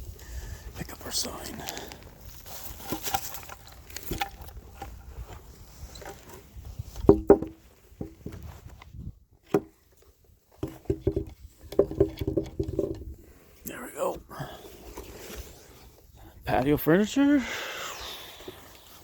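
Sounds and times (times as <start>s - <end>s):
sign knocking and clattering: 7.0s - 8.4s, 10.6s - 13.0s.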